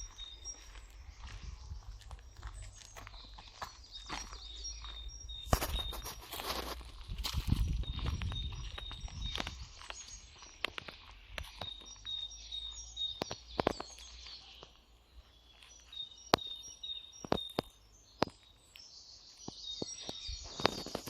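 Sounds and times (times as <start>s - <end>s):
small birds chirping: 0.0s - 21.0s
footsteps snapping twigs: 1.2s - 11.9s, 13.1s - 14.8s.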